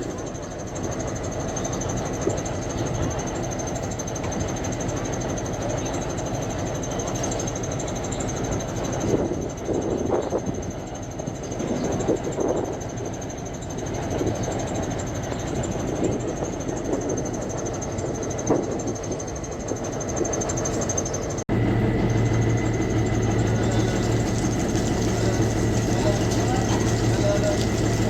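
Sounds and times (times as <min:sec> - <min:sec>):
motor running: 0:18.0 - 0:28.0.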